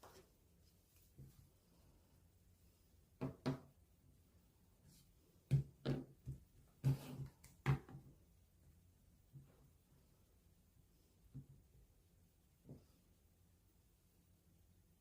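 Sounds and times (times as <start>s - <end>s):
objects knocking on hard surface: 5.5s - 8.0s.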